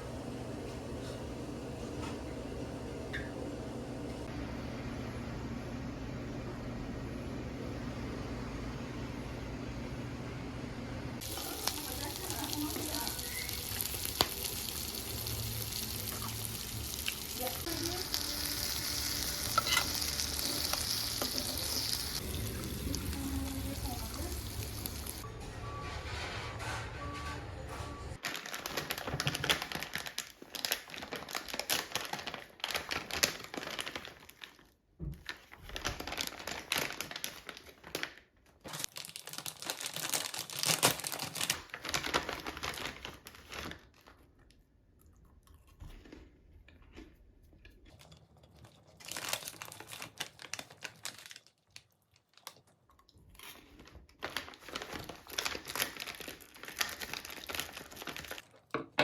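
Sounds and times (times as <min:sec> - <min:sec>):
packaging crinkling and tearing: 0:11.2 - 0:22.4, 0:28.2 - 0:44.6, 0:49.0 - 0:58.7.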